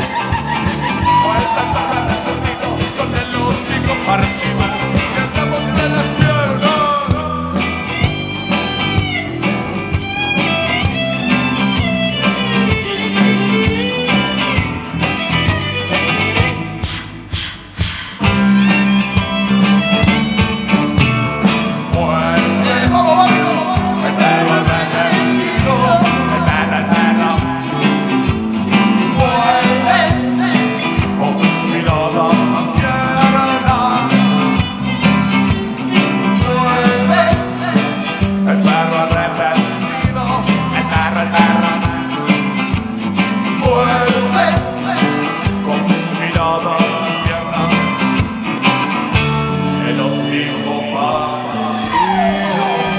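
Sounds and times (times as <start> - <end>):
lead melody line: 0.0 - 17.3, 18.4 - 52.9
drums and bass beat: 0.0 - 52.9.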